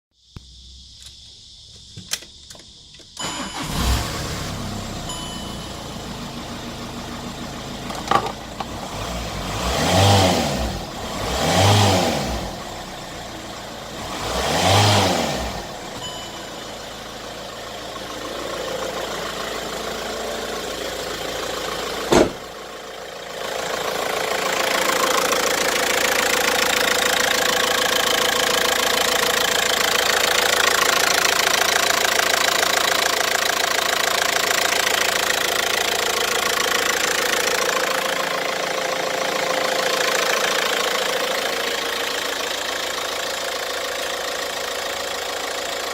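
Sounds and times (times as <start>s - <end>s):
car engine idling and revving: 3.2s - 45.9s.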